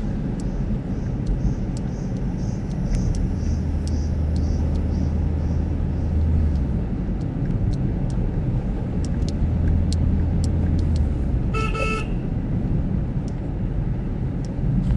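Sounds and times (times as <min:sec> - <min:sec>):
car engine and road rumble: 0:00.0 - 0:14.9
light ticks: 0:00.2 - 0:11.2, 0:13.2 - 0:13.5, 0:14.4 - 0:14.9
car horn toot: 0:11.5 - 0:12.2.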